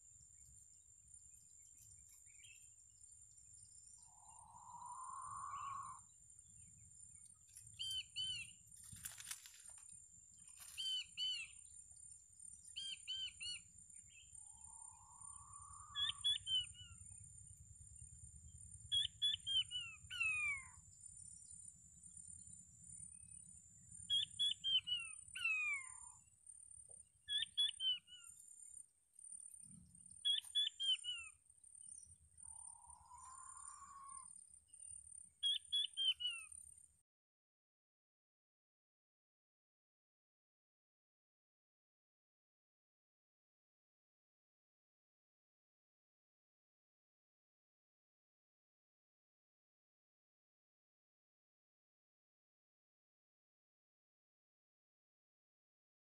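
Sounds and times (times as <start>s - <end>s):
small birds chirping: 0.0s - 36.9s.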